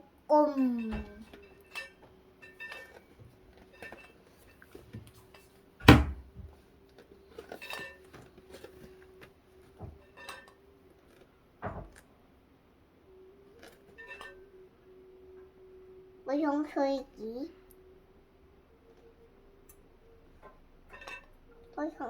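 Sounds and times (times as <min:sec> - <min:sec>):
toy pots and pans clattering: 0:00.7 - 0:04.7
faint whistle-like tone: 0:13.0 - 0:16.3.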